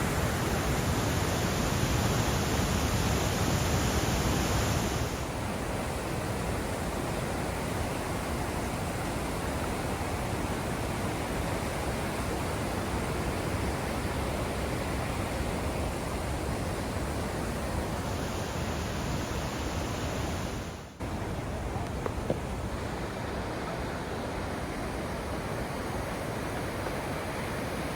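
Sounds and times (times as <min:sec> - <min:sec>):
waterfall roaring: 0:00.0 - 0:05.2.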